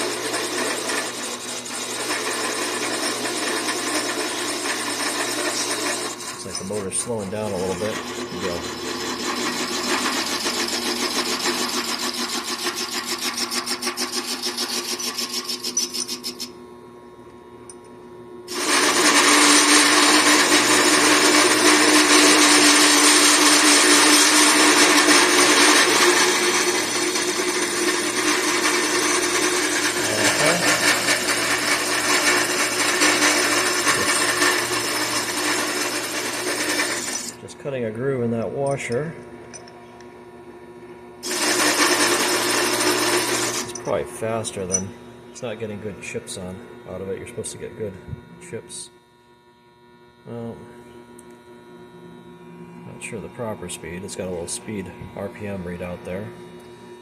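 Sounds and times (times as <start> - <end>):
lathe motor hum: 0.0 - 16.5, 18.5 - 37.4, 41.2 - 48.9
lathe tool scraping steel: 0.0 - 16.5, 18.5 - 37.4, 41.2 - 45.0.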